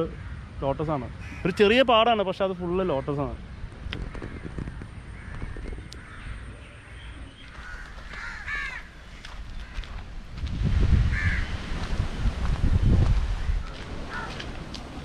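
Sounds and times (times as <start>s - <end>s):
bird harsh calls: 0.0s - 9.9s, 13.4s - 14.6s.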